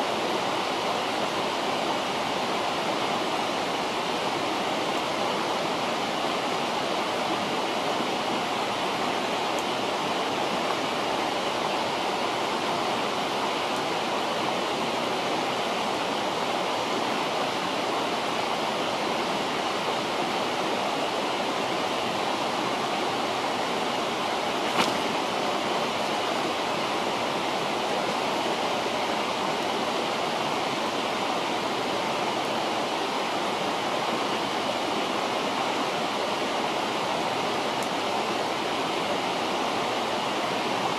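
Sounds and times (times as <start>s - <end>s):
river flowing: 0.0s - 40.9s
campfire pop: 24.7s - 25.1s.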